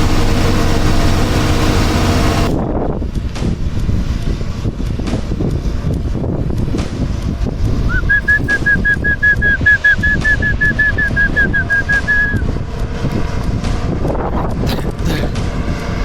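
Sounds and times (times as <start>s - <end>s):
truck engine low rumble: 0.0s - 16.0s
rapid high chirps: 8.0s - 12.4s.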